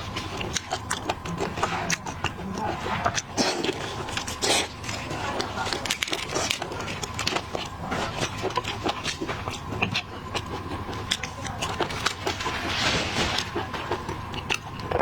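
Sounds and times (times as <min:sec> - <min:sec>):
person chewing: 0:00.0 - 0:15.0
shellfish shells cracking: 0:03.2 - 0:12.6.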